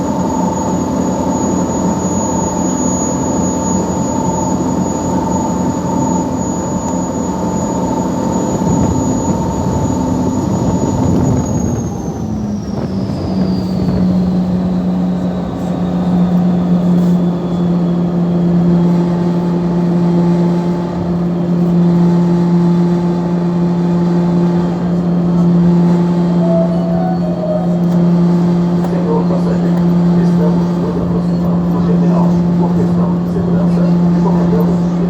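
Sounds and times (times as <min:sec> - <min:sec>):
diesel engine humming: 0:00.0 - 0:35.0
high whine sliding down: 0:15.4 - 0:35.0.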